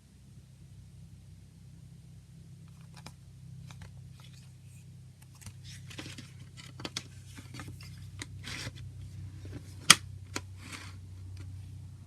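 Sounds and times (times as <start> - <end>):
steady low hum: 0.0 - 12.0
plastic packaging clicks and rustles: 2.7 - 8.8.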